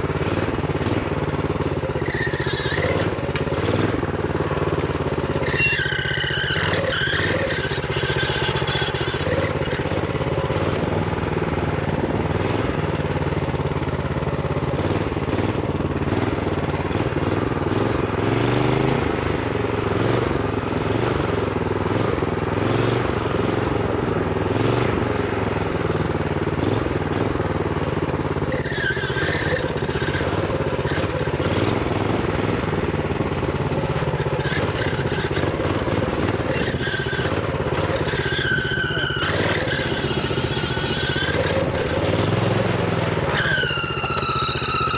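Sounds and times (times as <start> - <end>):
minibike engine running: 0.0 - 44.9
brief high squeals: 1.6 - 3.1, 5.4 - 9.4, 28.5 - 30.3, 36.5 - 37.4, 38.0 - 41.6, 43.3 - 44.9.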